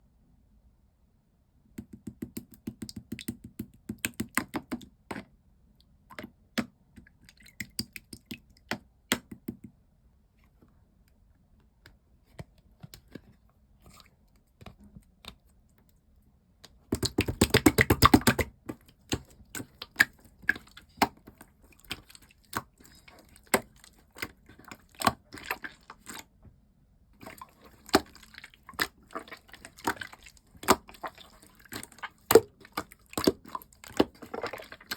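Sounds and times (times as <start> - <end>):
slime squishing and popping: 16.9 - 26.2, 27.2 - 34.9.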